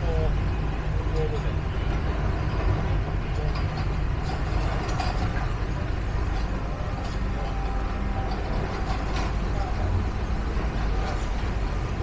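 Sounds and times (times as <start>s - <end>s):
low engine rumble: 0.0s - 12.0s
faint ticks and clatters: 3.3s - 9.8s.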